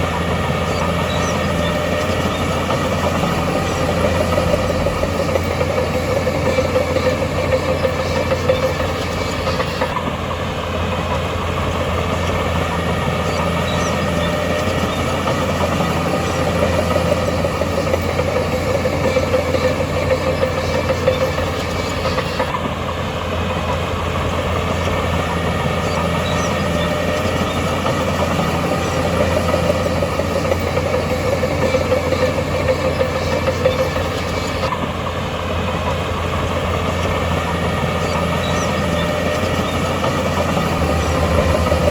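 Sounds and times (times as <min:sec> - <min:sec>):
wavering whine: 0:00.0 - 0:10.0, 0:37.3 - 0:41.9
diesel earthmoving machine running: 0:00.0 - 0:41.9
engine whine: 0:00.0 - 0:41.9.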